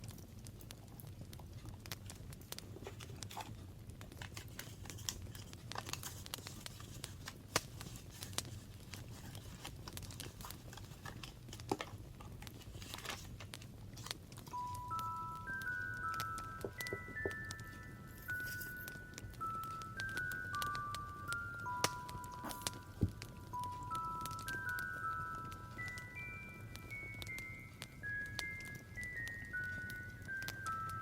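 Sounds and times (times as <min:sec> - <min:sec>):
low steady hum: 0:00.0 - 0:31.0
paper crinkling and rustling: 0:02.0 - 0:20.4.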